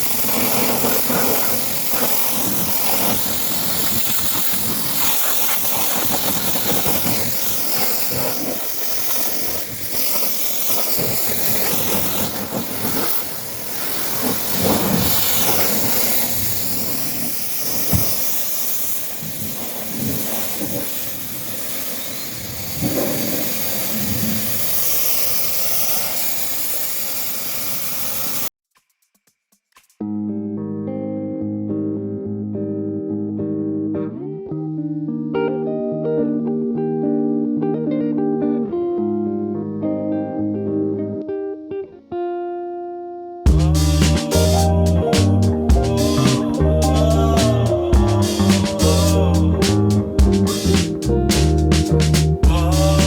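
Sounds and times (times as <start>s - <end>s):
high-pressure jet hissing: 0.0s - 28.5s, 43.5s - 53.0s.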